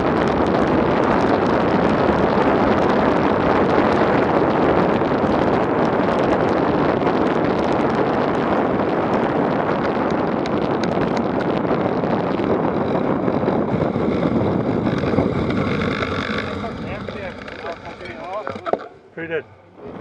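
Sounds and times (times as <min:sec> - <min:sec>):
wind buffeting microphone: 0:00.0 - 0:20.0
faint clicks and rattles: 0:14.6 - 0:18.9.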